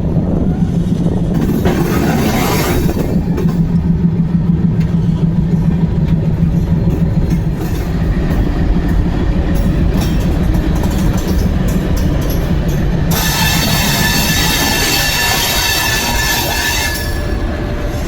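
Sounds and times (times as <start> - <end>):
train rumbling: 0.0 - 18.0
high ringing wheel squeal: 13.1 - 18.0.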